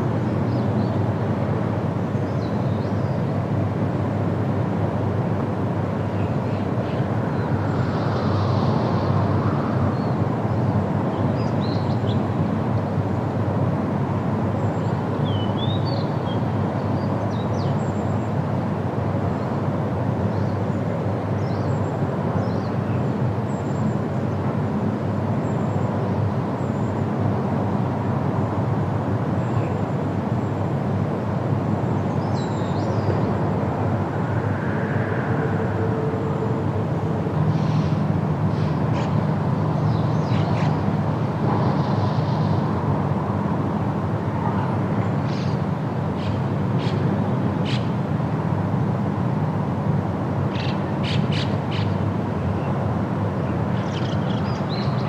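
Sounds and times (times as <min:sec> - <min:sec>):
low outdoor rumble: 0:31.5 - 0:44.9.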